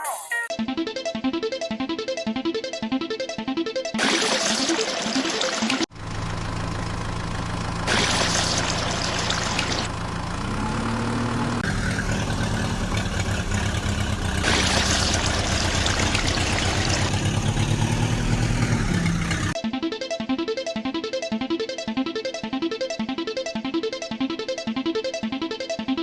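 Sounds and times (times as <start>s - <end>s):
vehicle engine running: 5.9s - 19.6s.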